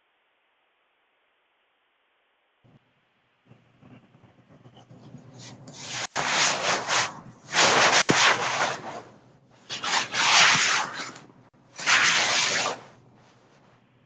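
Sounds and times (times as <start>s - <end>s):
rasping scraping noise: 3.8s - 13.5s.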